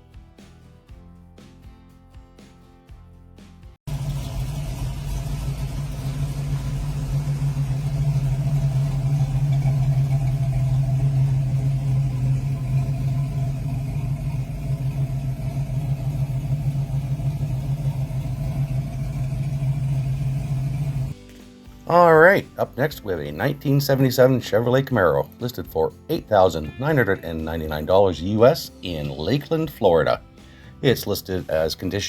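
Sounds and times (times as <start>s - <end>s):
deep car engine drone: 3.9s - 21.2s.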